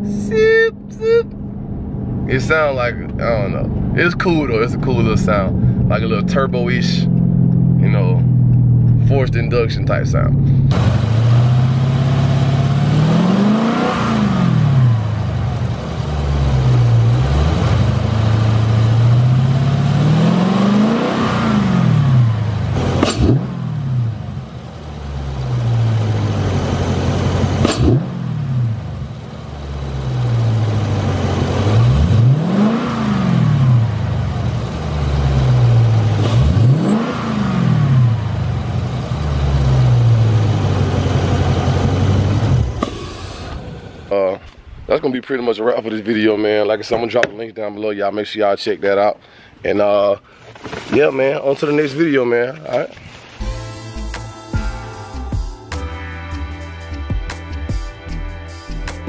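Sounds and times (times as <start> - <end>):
car engine revving and idling: 0.0 - 44.6.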